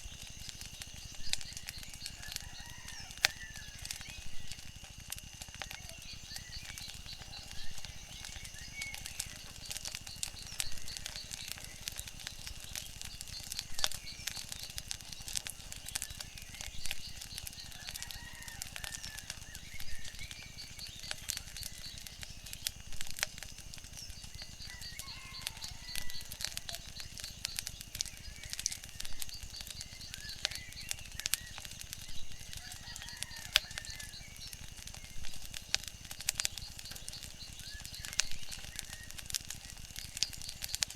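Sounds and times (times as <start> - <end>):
wood fire crackling and popping: 0.0 - 40.9.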